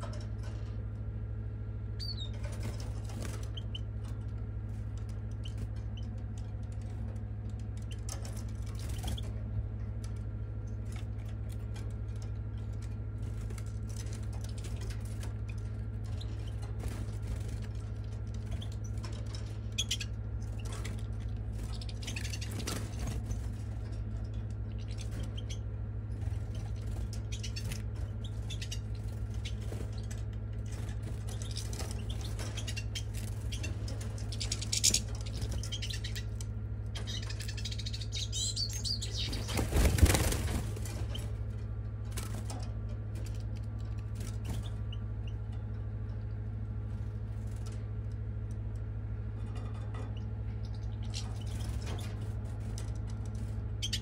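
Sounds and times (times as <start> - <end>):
low hum: 0.0 - 54.0
bird chirps: 2.0 - 2.4, 21.6 - 22.7, 26.5 - 30.2, 31.2 - 40.2, 53.8 - 54.0.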